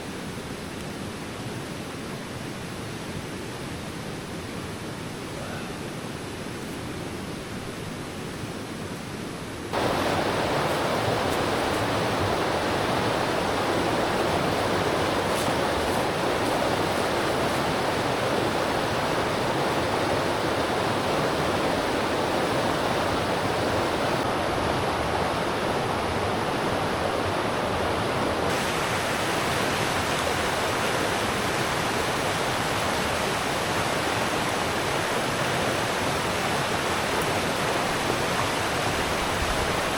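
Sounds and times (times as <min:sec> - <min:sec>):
river water rushing: 0:09.7 - 0:39.9.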